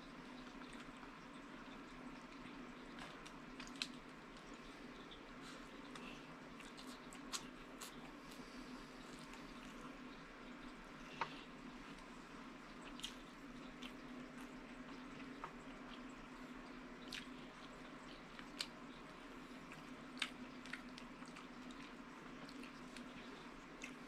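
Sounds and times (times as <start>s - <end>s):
low steady hum: 0.0s - 24.0s
person chewing with open mouth: 5.4s - 10.0s, 12.8s - 24.0s.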